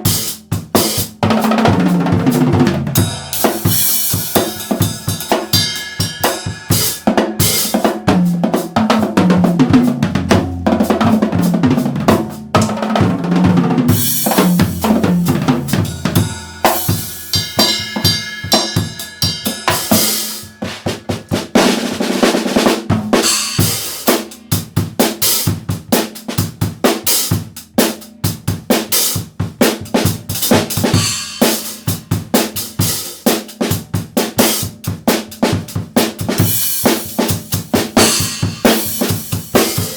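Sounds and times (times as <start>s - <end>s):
snare and bass drum patterns: 0.0s - 39.9s
cymbal crashes: 3.0s - 7.8s, 14.0s - 21.6s, 23.2s - 24.1s
tom fills: 12.6s - 22.3s.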